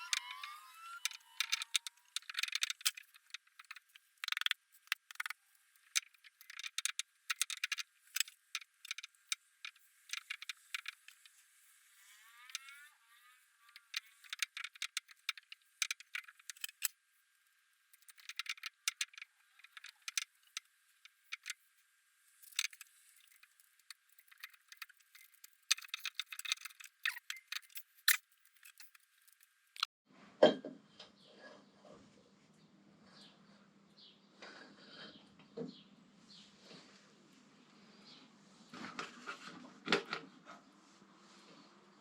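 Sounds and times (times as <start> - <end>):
metal parts and tools clinking: 0.0 - 11.4, 13.6 - 16.9, 17.9 - 21.6, 22.4 - 29.9.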